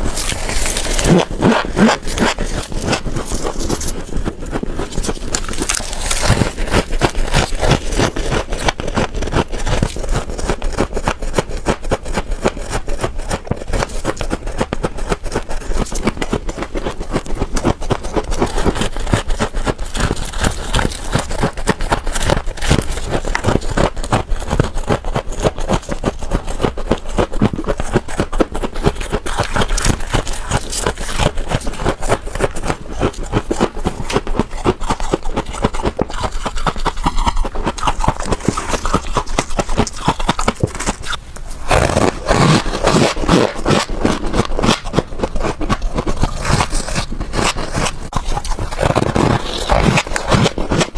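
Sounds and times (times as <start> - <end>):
frost ice scraped and crunched: 0.0 - 50.9.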